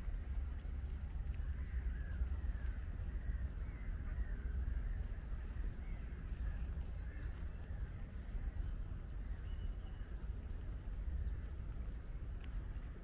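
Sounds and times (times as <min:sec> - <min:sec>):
steady low rumble: 0:00.0 - 0:13.0
faint bird calls: 0:01.3 - 0:10.2.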